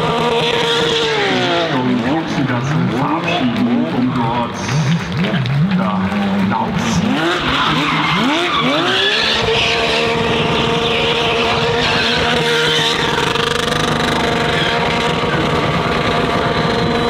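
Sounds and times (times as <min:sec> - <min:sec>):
race car engine revving: 0:00.0 - 0:17.0
tyres squealing: 0:07.2 - 0:15.1.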